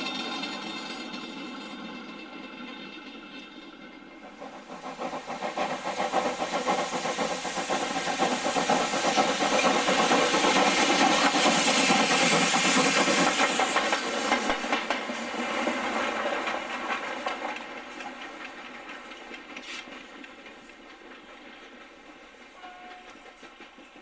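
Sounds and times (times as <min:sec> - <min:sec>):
steam locomotive running past: 0:00.0 - 0:24.0
steam hissing: 0:00.2 - 0:24.0.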